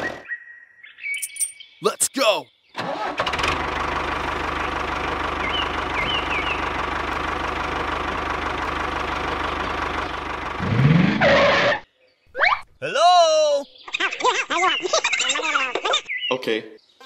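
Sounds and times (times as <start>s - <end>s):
tractor engine knocking: 3.4s - 10.6s.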